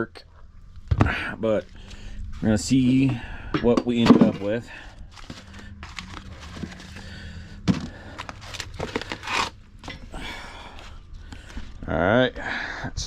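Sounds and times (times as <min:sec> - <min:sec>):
low steady hum: 0:00.0 - 0:13.0
rustling and scraping by hand: 0:00.8 - 0:10.1.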